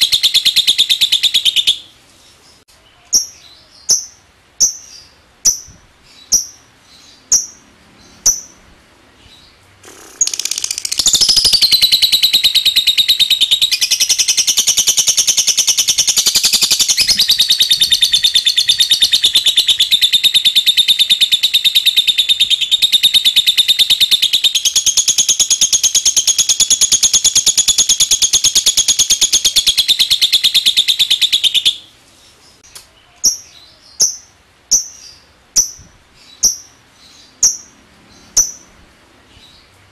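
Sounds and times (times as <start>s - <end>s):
bird rapid chattering trill: 9.8s - 31.8s.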